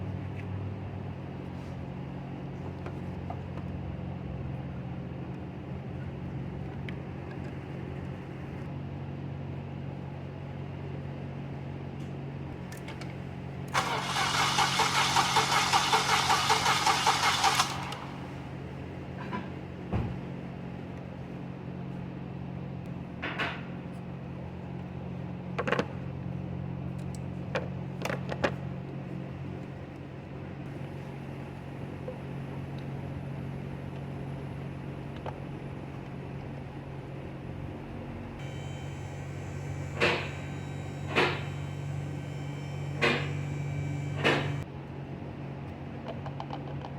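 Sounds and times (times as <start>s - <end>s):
engine cranking on starter: 13.7s - 18.6s, 38.4s - 44.6s
steady low hum: 30.2s - 44.7s
short clicks and knocks: 39.9s - 41.6s, 42.9s - 43.5s, 44.1s - 44.6s.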